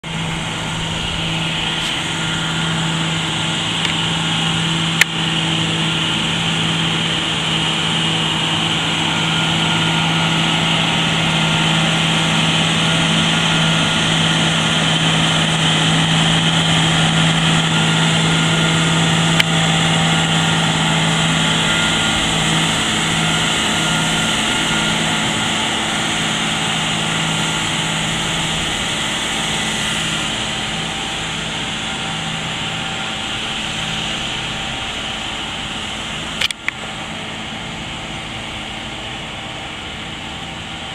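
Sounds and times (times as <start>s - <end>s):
tractor engine running: 0.0s - 40.9s
sharp clicks: 36.4s - 36.8s.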